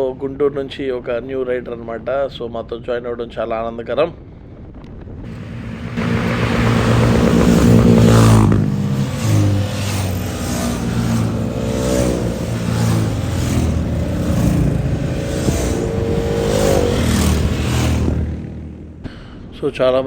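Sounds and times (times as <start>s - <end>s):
motorcycle engines revving: 5.3s - 19.1s.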